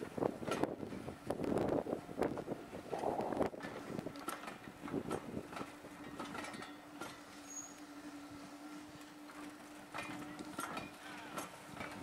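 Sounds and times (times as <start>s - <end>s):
train wheels clicking and knocking: 3.5s - 7.9s, 9.0s - 12.0s.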